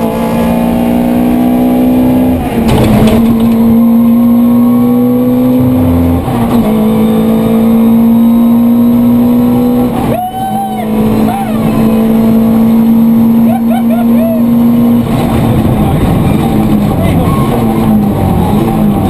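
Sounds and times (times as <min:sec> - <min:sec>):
rally car engine under load: 0:00.0 - 0:19.0.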